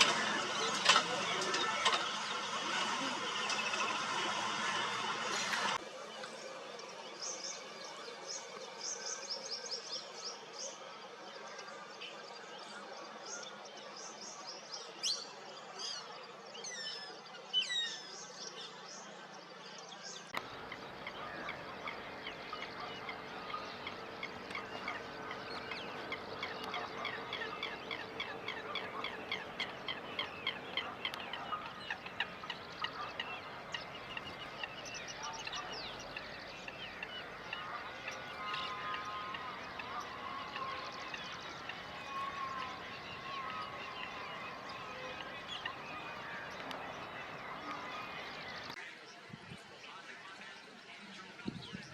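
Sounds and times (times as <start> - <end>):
birds chattering: 0.0 - 10.7, 20.3 - 48.8.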